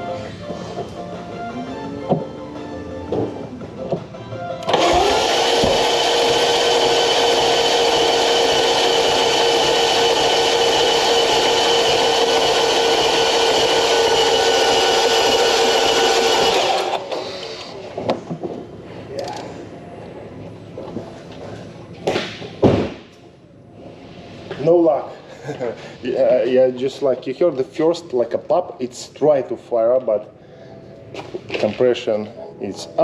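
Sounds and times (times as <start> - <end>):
engine cranking on starter: 4.6 - 17.8.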